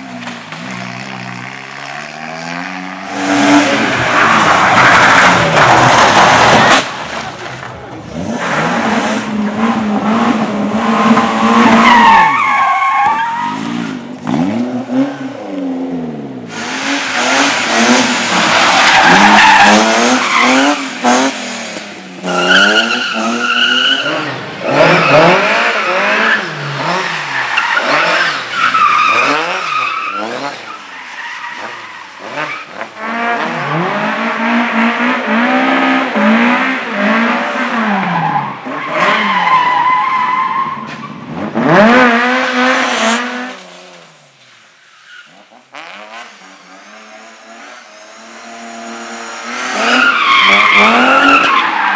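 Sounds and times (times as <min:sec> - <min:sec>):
car engines revving: 0:00.0 - 0:51.9
tyres squealing: 0:22.2 - 0:32.7.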